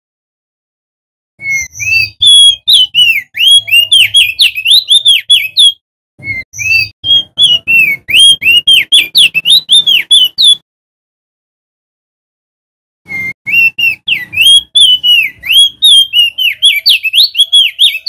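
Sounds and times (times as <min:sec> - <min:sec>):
bird singing whistled notes: 0:01.4 - 0:10.6, 0:13.1 - 0:18.0.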